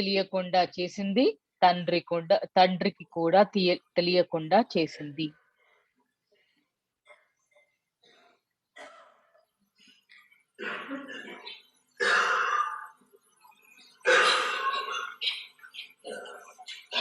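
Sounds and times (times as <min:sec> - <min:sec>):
person coughing: 0:10.6 - 0:12.9, 0:14.0 - 0:15.4.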